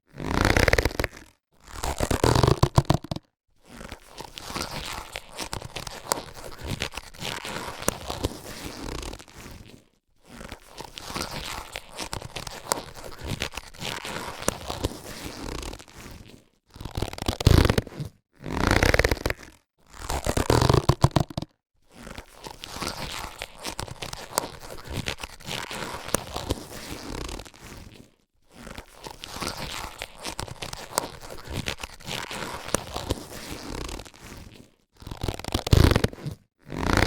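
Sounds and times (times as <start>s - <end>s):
latex gloves crackling: 0.2s - 37.0s.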